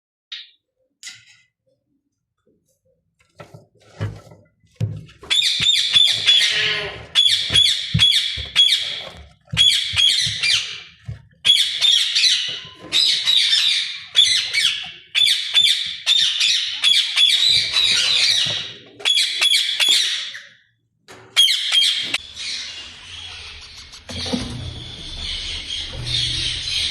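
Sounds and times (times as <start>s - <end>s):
parakeet squawking: 5.3s - 20.6s, 24.7s - 26.9s.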